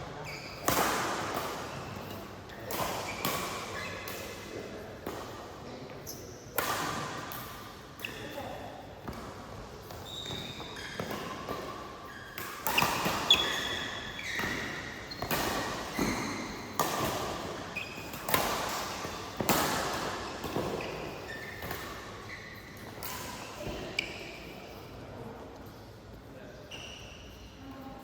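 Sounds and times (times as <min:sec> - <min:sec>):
shoes squeaking on court floor: 0:00.0 - 0:07.1, 0:08.0 - 0:25.0, 0:26.5 - 0:27.7
racket striking shuttlecock: 0:12.4 - 0:22.2.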